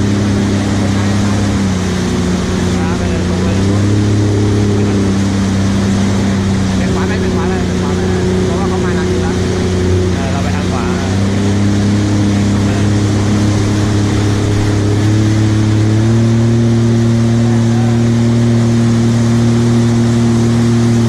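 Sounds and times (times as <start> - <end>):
jet ski engine running: 0.0 - 21.0
rushing water noise: 0.0 - 21.0.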